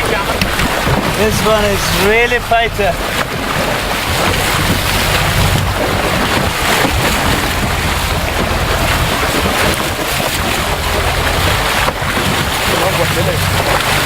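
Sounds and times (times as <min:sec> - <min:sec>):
boat engine humming: 0:00.0 - 0:14.0
sea water rushing: 0:00.0 - 0:14.0
wind buffeting microphone: 0:00.0 - 0:14.0.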